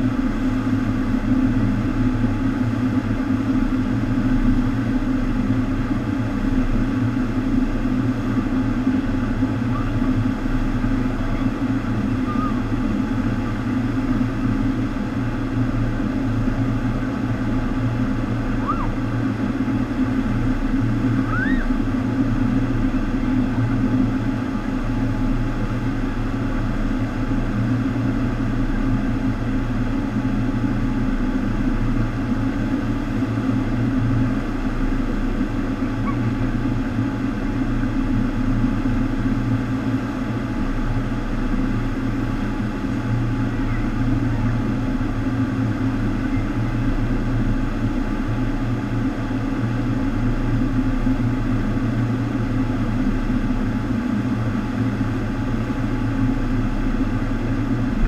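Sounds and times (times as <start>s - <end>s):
constant low hum: 0.0s - 58.0s.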